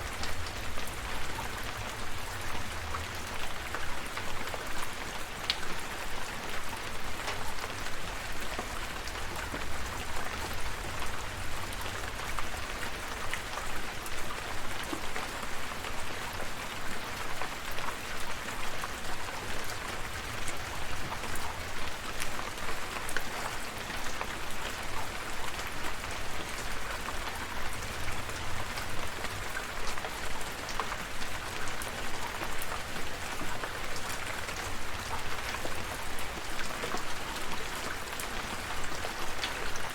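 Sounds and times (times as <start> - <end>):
rain drops pattering: 0.0 - 39.9.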